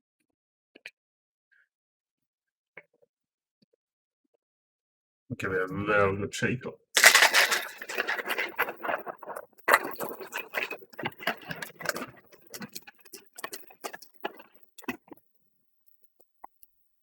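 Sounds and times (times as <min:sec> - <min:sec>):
ice cubes rattling in shaker bottle: 0:07.0 - 0:14.5.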